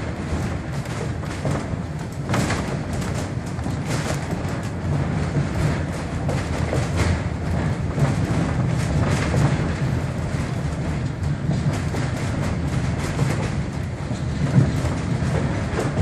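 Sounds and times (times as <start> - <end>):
railway car rumbling: 0.0 - 16.0
wheels clicking on rails: 0.0 - 16.0.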